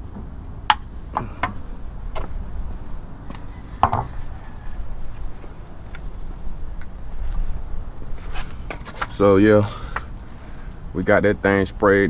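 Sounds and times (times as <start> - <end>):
low steady rumble: 0.0 - 12.0
sharp knocks and clicks: 3.3 - 4.2.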